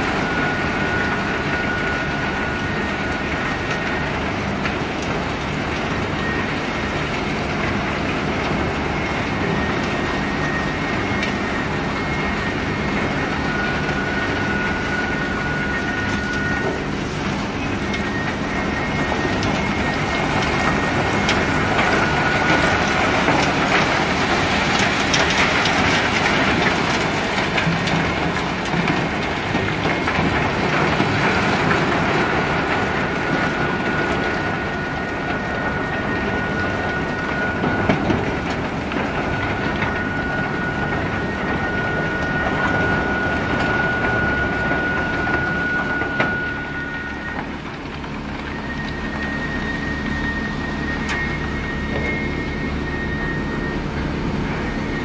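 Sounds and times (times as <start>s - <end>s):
conveyor machinery running: 0.0s - 55.0s
thin high squeaks: 48.5s - 55.0s.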